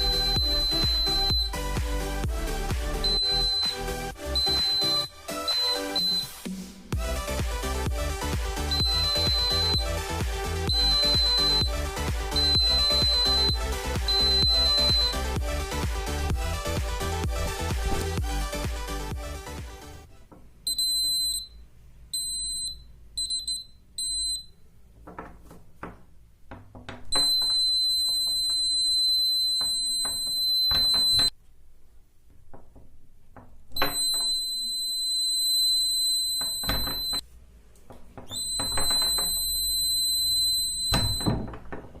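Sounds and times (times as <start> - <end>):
high-pitched alarm buzzer: 0.0 - 1.6, 3.0 - 6.4, 8.6 - 10.1, 10.7 - 15.4, 27.2 - 31.3, 33.8 - 37.2, 38.4 - 41.4
clicks and knocks: 25.0 - 28.6.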